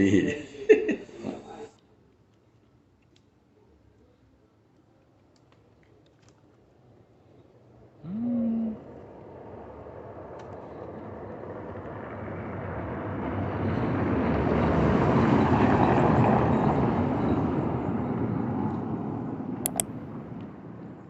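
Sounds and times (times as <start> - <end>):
sharp clicks: 19.7 - 20.1.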